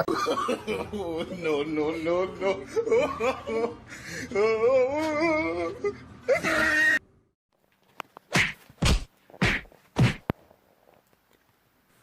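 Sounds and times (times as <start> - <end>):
heavy thwacks with low thud: 8.3 - 10.4.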